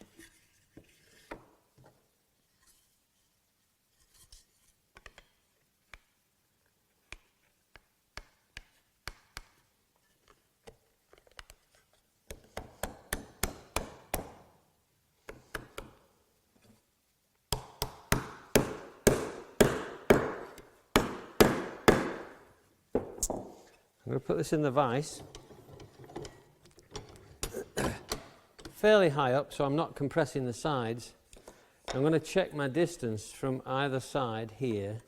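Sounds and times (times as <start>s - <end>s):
hammer tapping wood: 17.5s - 22.4s.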